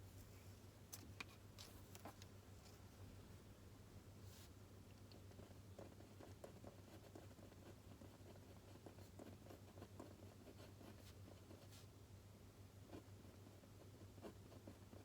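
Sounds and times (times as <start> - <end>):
pen scratching on paper: 5.3 - 11.8.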